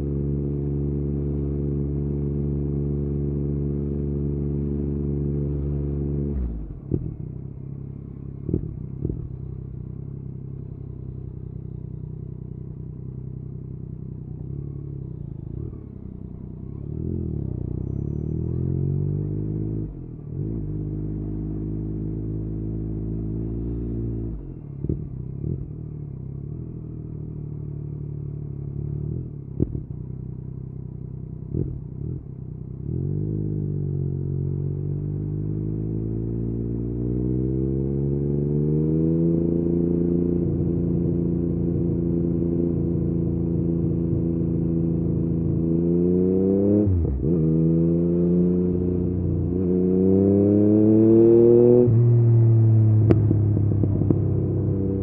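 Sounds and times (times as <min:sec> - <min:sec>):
motorcycle engine revving: 0:28.2 - 0:55.0.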